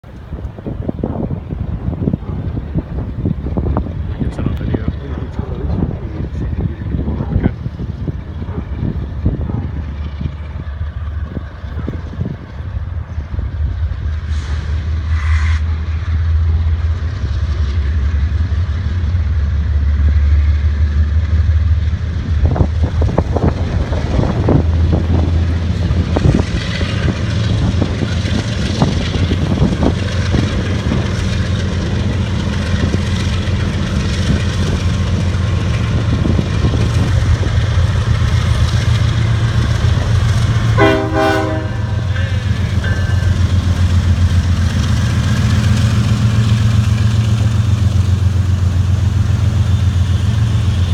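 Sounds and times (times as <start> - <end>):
diesel locomotive engine rumbling: 0.0 - 50.9
train wheels clacking on rail joints: 0.0 - 50.9
train horn blast: 40.7 - 42.5.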